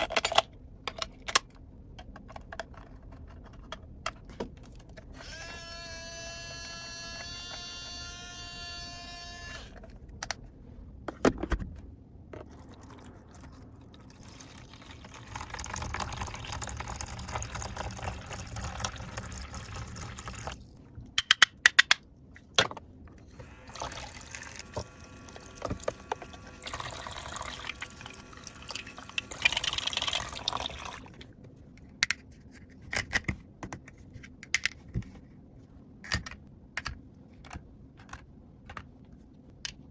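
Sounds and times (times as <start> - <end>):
water pouring: 12.5 - 20.6, 23.6 - 31.2.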